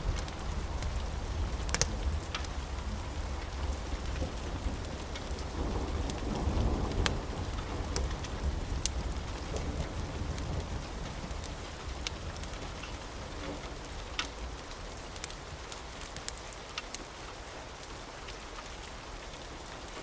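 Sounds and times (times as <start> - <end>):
low rumble of thunder: 0.0 - 15.5
steady rain: 0.0 - 20.0.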